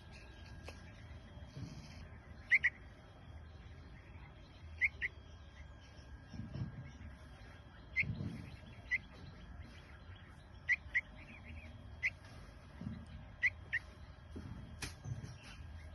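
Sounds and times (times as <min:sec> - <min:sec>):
baby bird cheeping: 0:00.2 - 0:02.9, 0:04.4 - 0:06.1, 0:06.9 - 0:12.4, 0:13.3 - 0:13.9.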